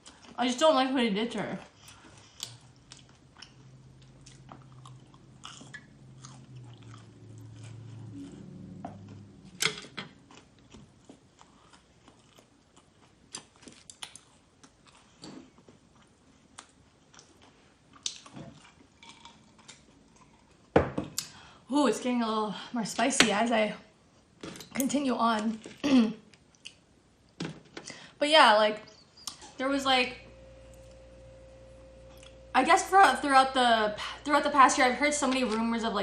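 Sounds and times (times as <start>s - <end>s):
chewing crunchy fried chicken: 1.5s - 9.4s, 10.1s - 20.7s.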